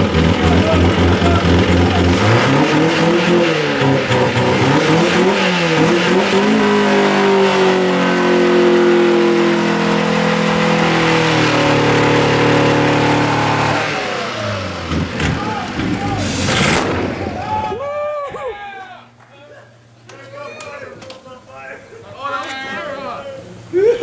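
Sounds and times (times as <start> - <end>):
car engine revving: 0.0 - 17.4.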